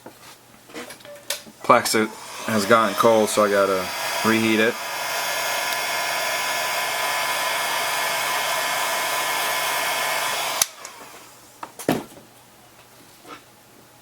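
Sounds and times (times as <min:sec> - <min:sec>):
hot-air blower running: 0:01.9 - 0:11.6.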